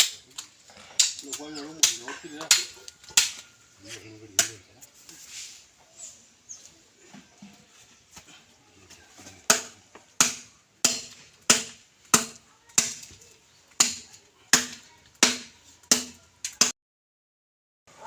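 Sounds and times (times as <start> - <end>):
hand tool striking: 9.5 - 13.1.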